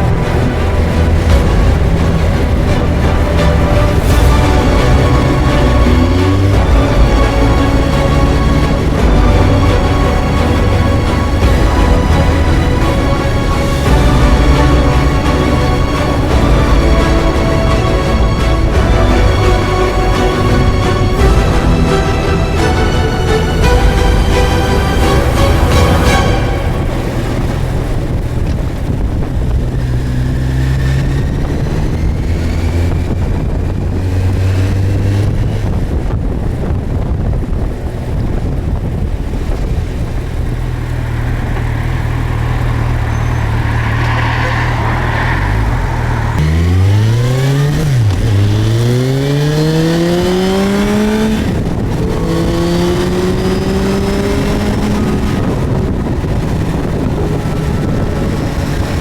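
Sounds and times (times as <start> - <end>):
motorcycle engine accelerating: 0.0 - 59.0
wind rush: 0.0 - 59.0.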